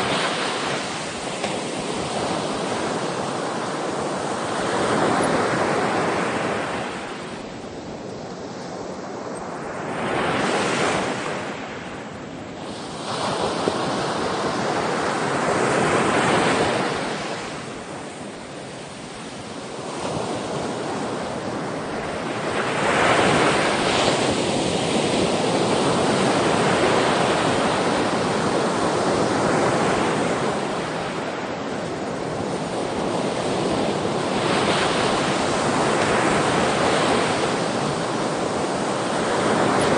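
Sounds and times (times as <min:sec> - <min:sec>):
ocean waves breaking on shore: 0:00.0 - 0:39.9
wind: 0:00.0 - 0:39.9.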